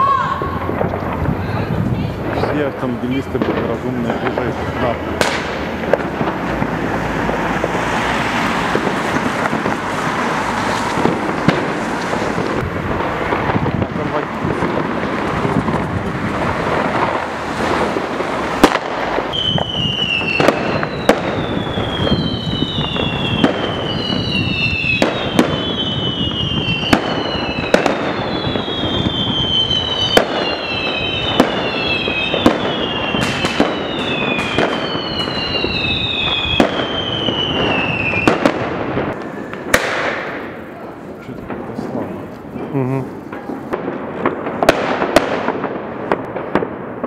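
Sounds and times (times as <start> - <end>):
firecracker bangs: 0.0 - 47.0
falling firework whistles: 16.8 - 40.7.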